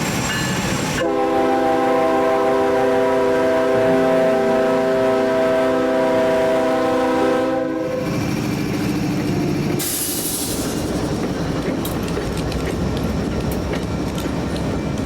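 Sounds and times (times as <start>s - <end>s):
locomotive air horn chord: 1.0s - 8.0s
air hiss: 9.8s - 10.9s
locomotives rumbling past: 10.5s - 15.0s
wheels clicking over rail joints: 10.7s - 15.0s.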